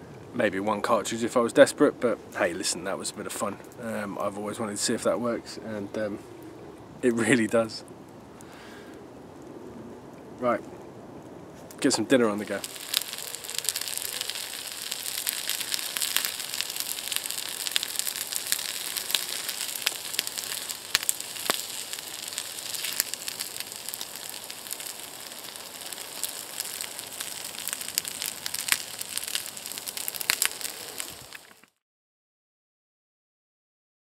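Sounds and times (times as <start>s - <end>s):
crackles and pops: 11.6s - 31.8s
pan of food sizzling: 12.4s - 31.7s.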